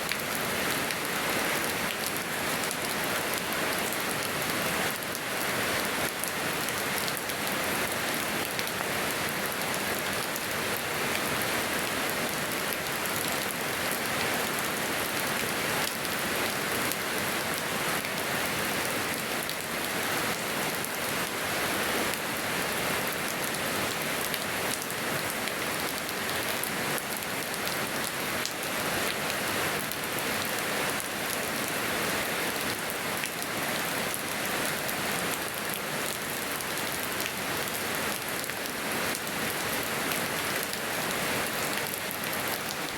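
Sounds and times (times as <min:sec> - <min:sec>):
rain pattering: 0:32.6 - 0:42.9.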